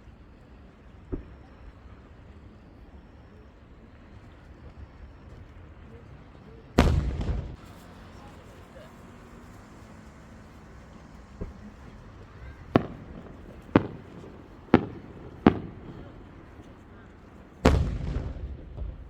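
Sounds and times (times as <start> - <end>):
deep rumbling firework boom: 6.8 - 7.6, 12.7 - 16.2, 17.6 - 19.0
fireworks bursting: 6.8 - 19.0.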